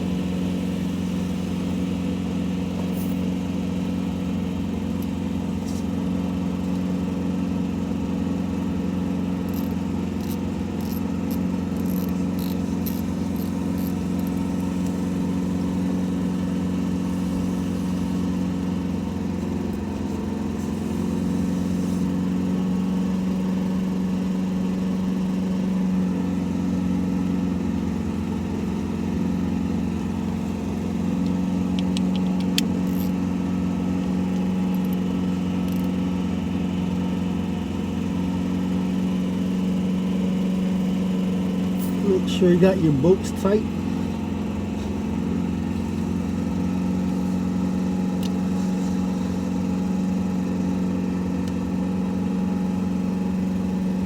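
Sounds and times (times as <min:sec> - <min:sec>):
steady mechanical drone: 0:08.3 - 0:18.0, 0:30.7 - 0:36.2, 0:39.4 - 0:51.7.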